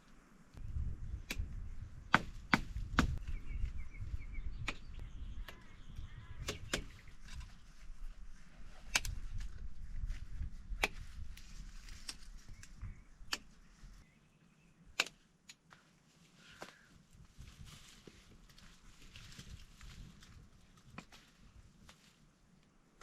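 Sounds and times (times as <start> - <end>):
axe strikes on wood: 2.1 - 3.2.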